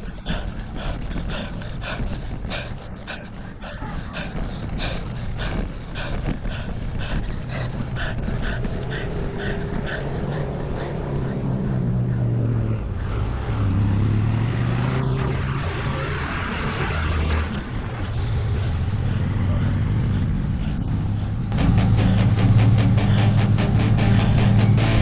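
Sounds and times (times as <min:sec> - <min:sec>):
fast rhythmic pulsing: 0:00.0 - 0:13.1
vehicle engine approaching: 0:00.0 - 0:25.0.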